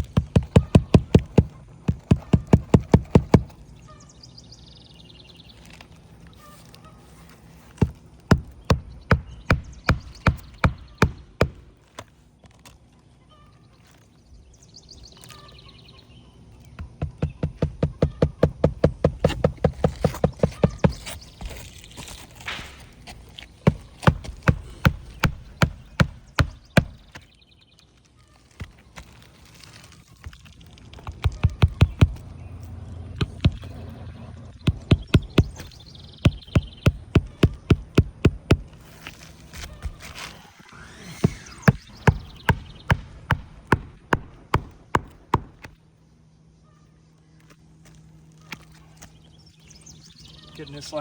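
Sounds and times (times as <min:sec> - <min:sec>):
hammer striking nail: 0:08.3 - 0:11.7, 0:23.6 - 0:27.2, 0:41.2 - 0:45.8.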